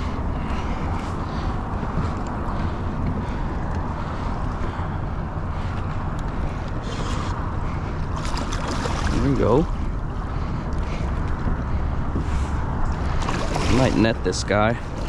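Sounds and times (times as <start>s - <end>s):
water sloshing around kayak: 0.0s - 15.0s
wind buffeting microphone: 0.0s - 15.0s
water splashes: 6.9s - 11.0s, 12.9s - 15.0s.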